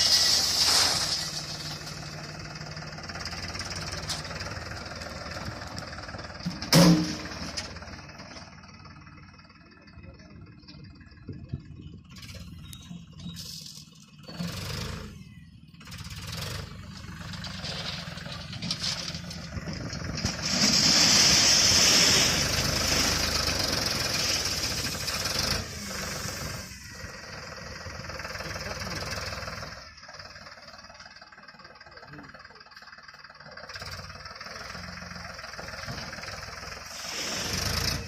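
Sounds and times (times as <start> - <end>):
tractor engine running: 0.0 - 38.0
hissing noise: 36.9 - 37.9.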